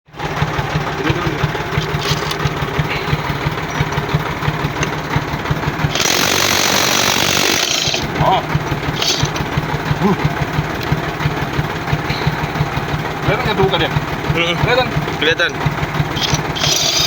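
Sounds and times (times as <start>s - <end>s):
engine running: 0.1s - 17.0s
impact wrench hammering: 5.8s - 9.8s, 15.9s - 17.0s.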